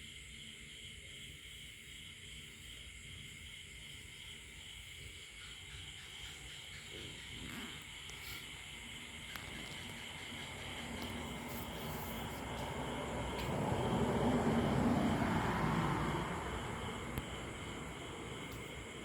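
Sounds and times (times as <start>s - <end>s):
night insects chorus: 0.0s - 19.0s
distant engine passing: 9.0s - 19.0s.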